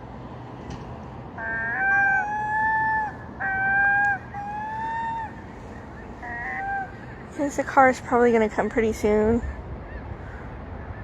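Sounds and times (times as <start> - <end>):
gull calling: 1.4 - 7.6.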